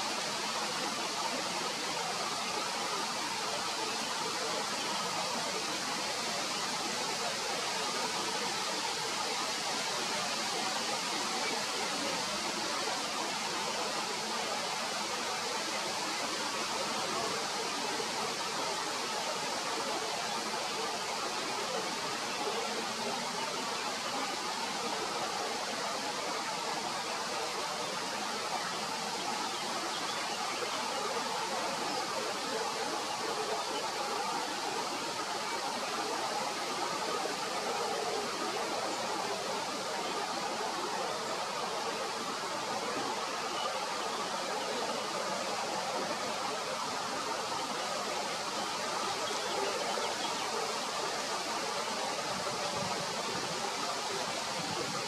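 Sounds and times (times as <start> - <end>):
steady hiss: 0.0 - 55.0.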